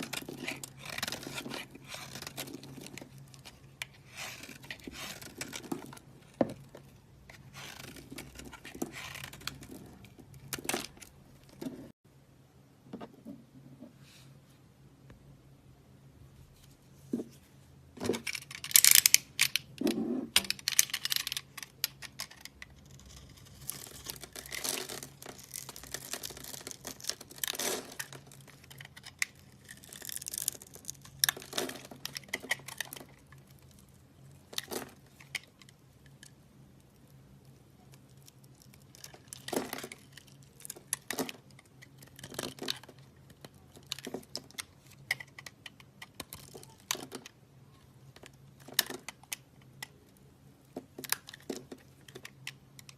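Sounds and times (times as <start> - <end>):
dry soap crunching and crackling: 0.0 - 11.6, 20.5 - 47.4.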